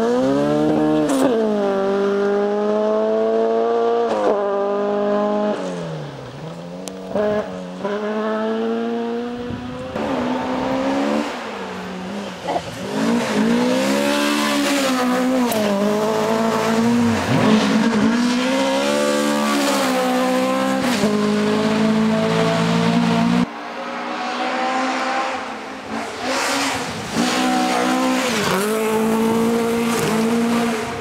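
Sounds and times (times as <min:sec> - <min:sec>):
rally car engines revving: 0:00.0 - 0:31.0.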